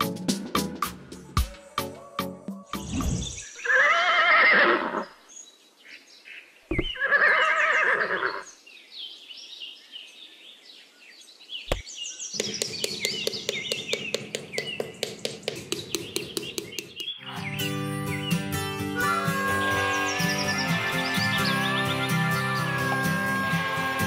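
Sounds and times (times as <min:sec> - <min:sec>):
horse whinnying: 0:03.6 - 0:05.0, 0:06.8 - 0:08.4
birds chirping: 0:04.8 - 0:23.6.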